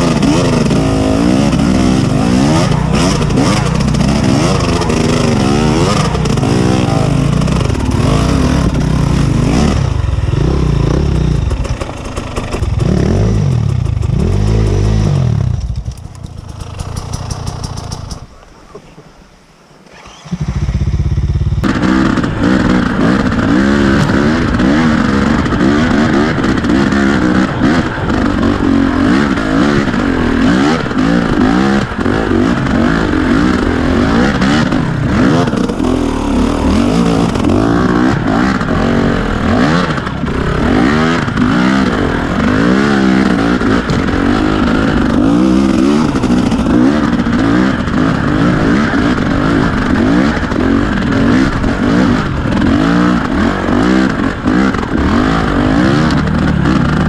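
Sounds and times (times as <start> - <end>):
motorcycle engine revving: 0.0 - 18.4, 19.8 - 57.0
bike clattering over rough ground: 15.5 - 18.3.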